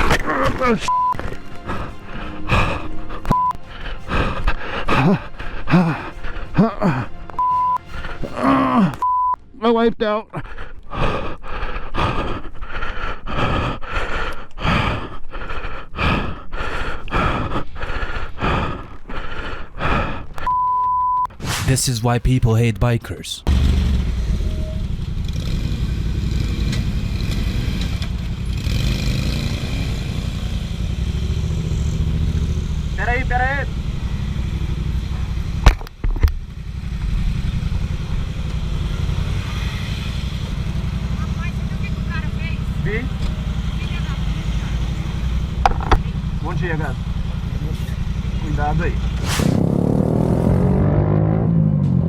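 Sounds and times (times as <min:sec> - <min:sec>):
person breathing hard: 0:10.4 - 0:20.4.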